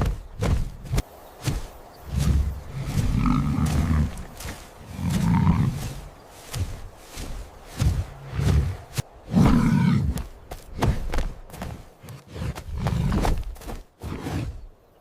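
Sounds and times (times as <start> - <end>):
sharp thuds: 0.0 - 11.8
lion growling and roaring: 2.0 - 6.8, 7.7 - 10.8, 12.0 - 14.7.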